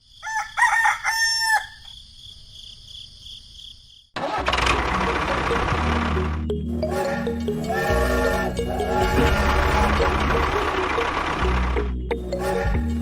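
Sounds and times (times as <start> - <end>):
rooster crowing: 0.2 - 2.0.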